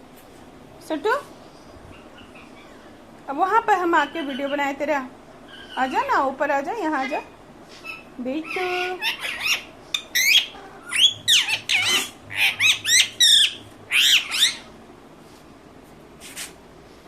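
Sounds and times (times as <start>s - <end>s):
parrot squawking: 1.9s - 2.9s, 3.9s - 4.8s, 5.5s - 6.2s, 6.9s - 14.7s.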